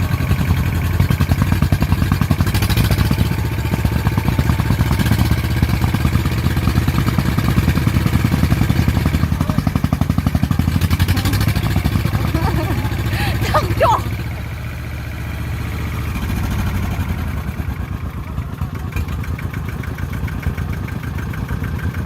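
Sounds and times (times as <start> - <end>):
diesel engine chugging under load: 0.0 - 22.0.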